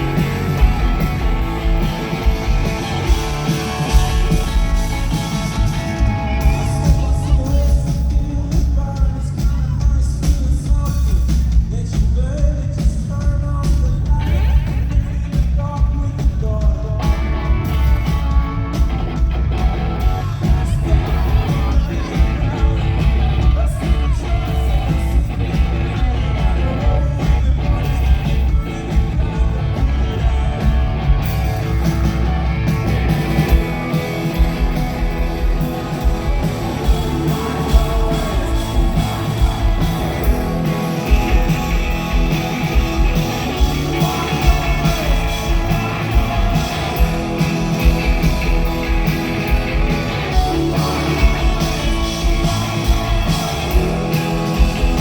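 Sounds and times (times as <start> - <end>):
electric guitars: 0.0 - 12.1, 16.2 - 55.0
person singing: 0.0 - 18.7, 33.4 - 55.0
drums: 0.0 - 55.0
heavy bass: 0.0 - 55.0.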